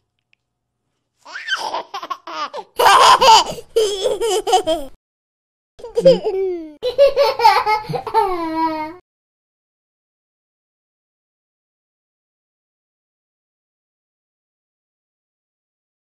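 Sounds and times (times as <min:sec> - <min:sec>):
baby laughing and babbling: 0:01.3 - 0:05.0, 0:05.8 - 0:09.0.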